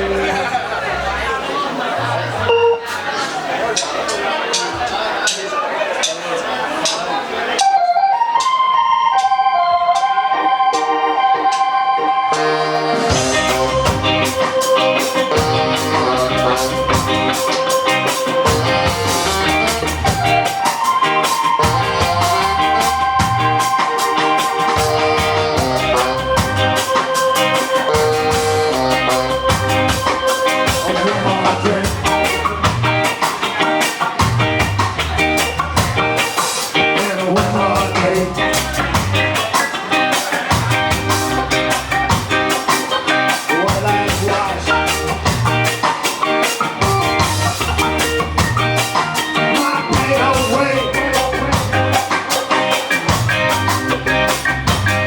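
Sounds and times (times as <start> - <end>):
ska band playing live: 0.0 - 55.0
long held notes: 2.4 - 3.1, 7.6 - 32.2.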